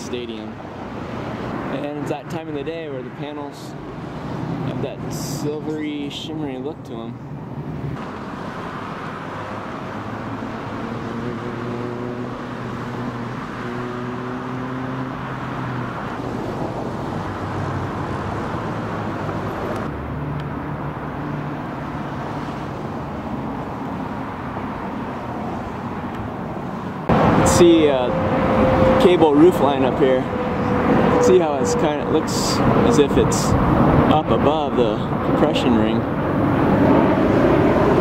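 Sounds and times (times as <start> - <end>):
road noise: 0.0 - 38.0
vehicle engines passing: 0.0 - 38.0.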